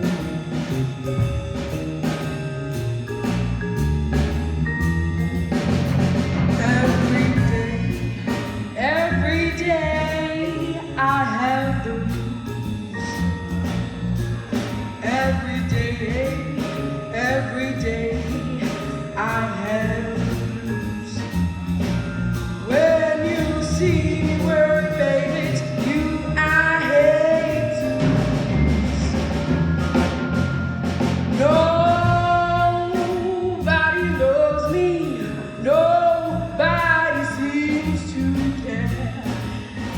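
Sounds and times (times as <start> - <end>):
bass guitar: 0.0 - 39.9
drum kit: 0.0 - 39.9
vibraphone: 0.0 - 39.9
person singing: 6.6 - 12.4.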